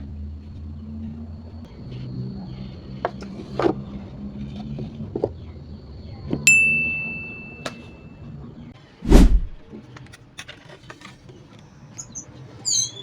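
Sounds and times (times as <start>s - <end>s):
bright metallic ding: 6.5s - 8.0s.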